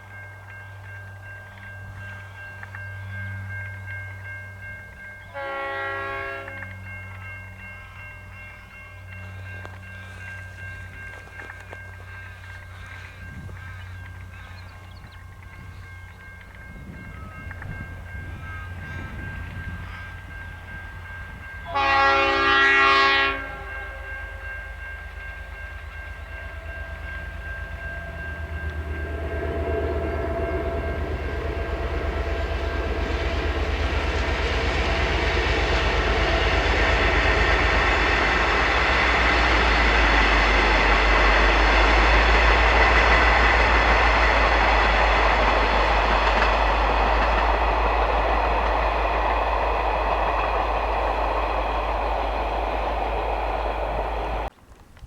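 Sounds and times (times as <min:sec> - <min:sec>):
train wheels rumbling on rails: 0:00.0 - 0:55.0
train horn blast: 0:05.3 - 0:06.8, 0:21.5 - 0:24.9, 0:26.2 - 0:48.4.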